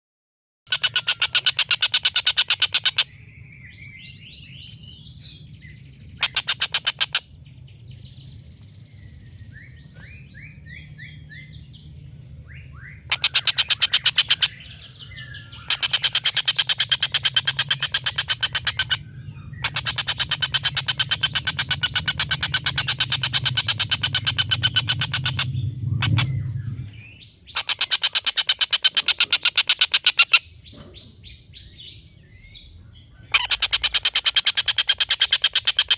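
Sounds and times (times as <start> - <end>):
kingfisher chattering call: 0.7 - 3.1, 13.1 - 19.0, 19.6 - 26.3, 27.6 - 30.5
faint low hum: 7.3 - 27.7.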